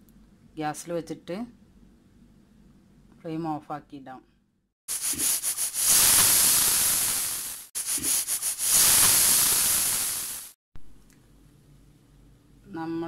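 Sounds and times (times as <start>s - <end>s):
pressure cooker whistling: 4.9s - 10.6s.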